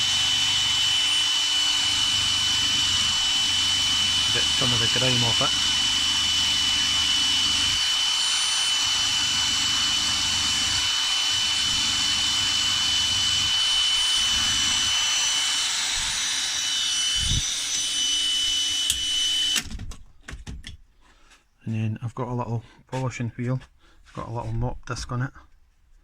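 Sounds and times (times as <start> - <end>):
drill wire brush scouring bolt: 0.0 - 19.6.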